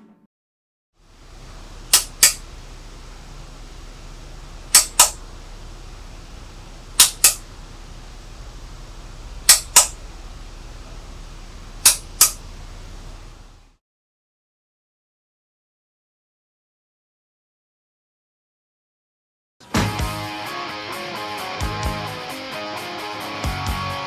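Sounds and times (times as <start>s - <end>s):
steady low hum: 1.0s - 13.7s
sharp clicks in pairs: 1.2s - 13.6s.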